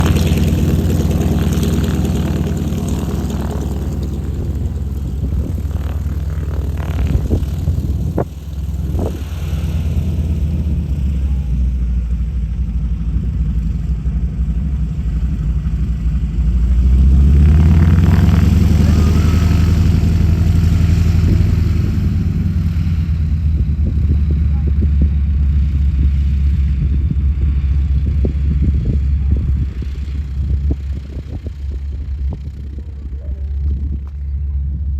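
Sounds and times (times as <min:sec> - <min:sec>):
piston engine running: 0:00.0 - 0:11.5.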